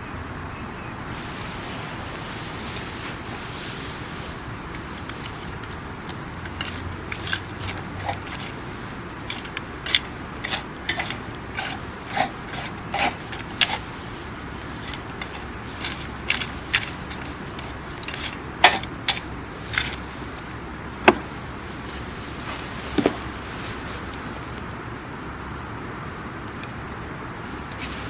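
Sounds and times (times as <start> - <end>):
campfire crackling: 1.0 - 25.4.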